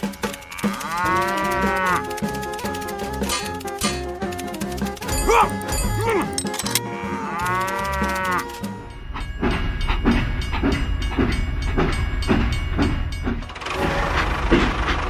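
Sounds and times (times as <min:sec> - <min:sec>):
rhythmic pulsing beat: 0:00.0 - 0:06.4, 0:07.8 - 0:15.0
background music: 0:00.0 - 0:14.7
cow-like moo: 0:00.2 - 0:02.2, 0:06.8 - 0:08.6.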